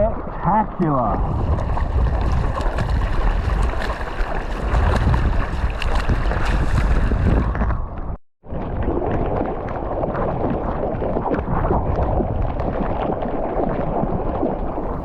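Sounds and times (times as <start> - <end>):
sea noise: 0.0 - 15.0
wind buffeting microphone: 1.2 - 8.2.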